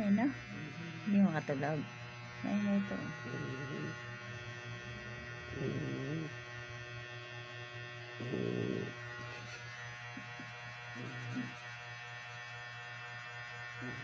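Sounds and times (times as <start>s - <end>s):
electrical hum: 0.0s - 14.0s
dog snoring: 0.3s - 1.5s, 2.4s - 6.8s, 8.0s - 11.8s, 13.7s - 14.0s.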